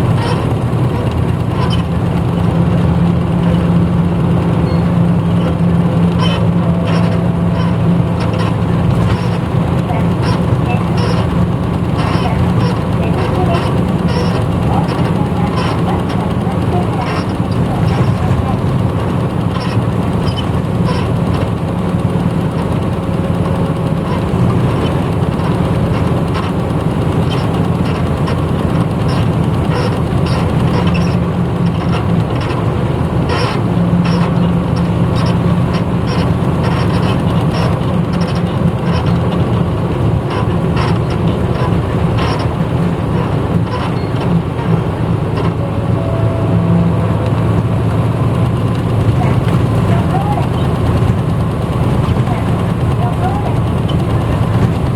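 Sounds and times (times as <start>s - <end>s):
bus diesel engine running: 0.0s - 54.9s
interior rattles: 0.0s - 54.9s
road noise: 0.0s - 54.9s.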